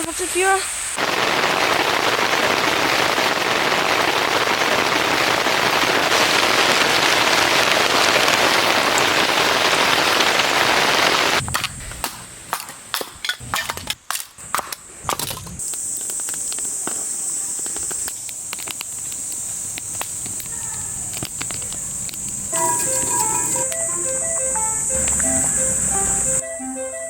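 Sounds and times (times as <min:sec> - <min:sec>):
heavy rain pouring: 0:00.0 - 0:12.1, 0:20.4 - 0:27.0.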